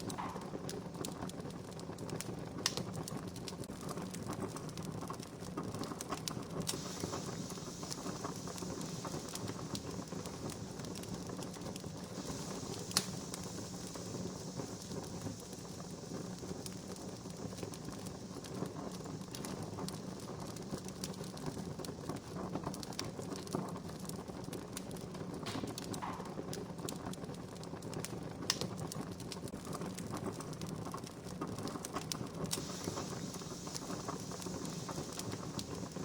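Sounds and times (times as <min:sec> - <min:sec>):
wood fire crackling and popping: 0:00.0 - 0:36.0
high hiss: 0:06.6 - 0:22.4, 0:32.4 - 0:36.0.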